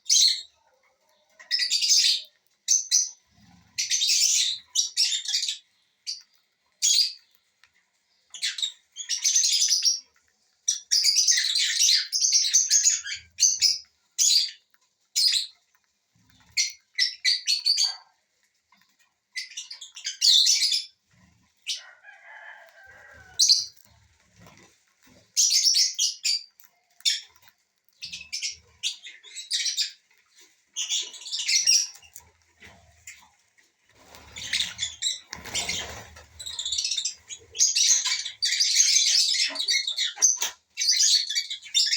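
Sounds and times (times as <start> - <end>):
wings flapping: 33.9 - 36.9.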